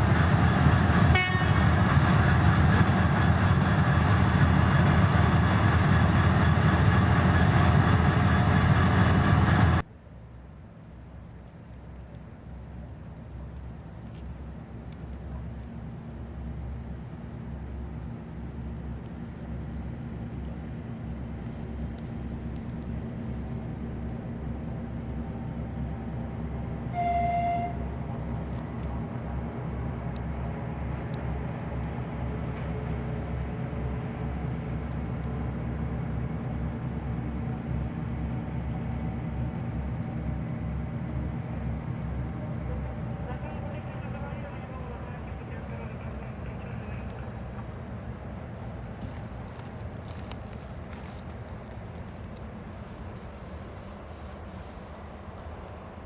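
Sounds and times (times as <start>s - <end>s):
train running on rails: 0.0s - 9.9s, 10.7s - 56.0s
diesel locomotive engine rumbling: 0.0s - 56.0s
locomotive horn blast: 1.1s - 1.8s, 26.8s - 28.0s.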